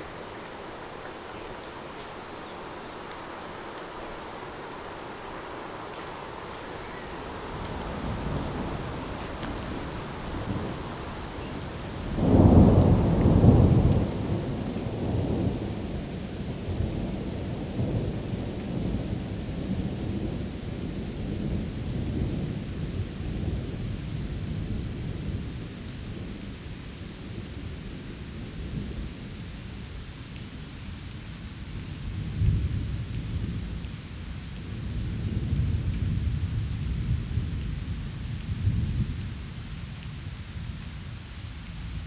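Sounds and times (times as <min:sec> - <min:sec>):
thunder rumbling: 0:00.0 - 0:25.6
steady rain: 0:00.0 - 0:42.0.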